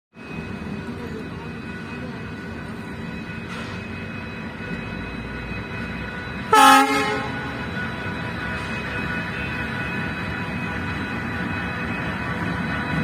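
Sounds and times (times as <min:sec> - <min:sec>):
loud horn blast: 0:06.5 - 0:07.6.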